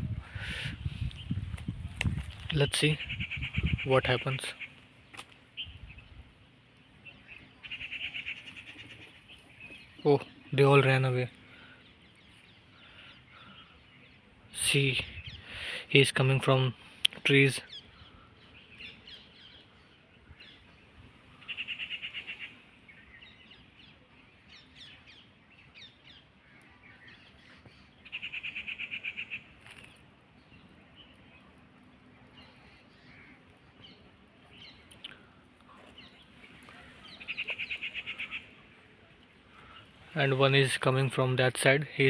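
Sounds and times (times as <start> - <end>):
forest birds chirping: 0.0 - 42.0
rapid trilling bird call: 2.8 - 4.8, 7.1 - 10.2, 21.4 - 23.4, 28.0 - 30.0, 36.0 - 40.2.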